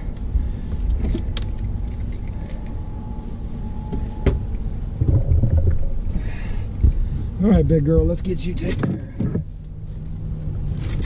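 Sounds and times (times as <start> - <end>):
low rumble: 0.0 - 8.5.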